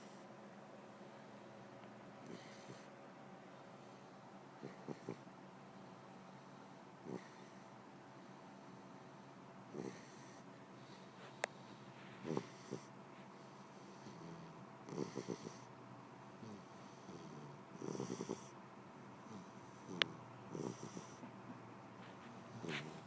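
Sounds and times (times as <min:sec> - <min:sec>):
puppy snoring: 0:02.2 - 0:02.9, 0:04.6 - 0:05.3, 0:07.0 - 0:07.7, 0:09.7 - 0:11.4, 0:12.1 - 0:15.7, 0:16.4 - 0:18.6, 0:19.2 - 0:21.3, 0:22.0 - 0:23.0.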